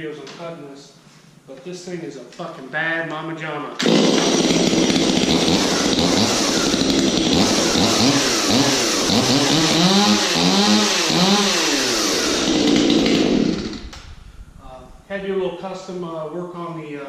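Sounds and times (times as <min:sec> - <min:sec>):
chainsaw revving: 0:03.8 - 0:14.1.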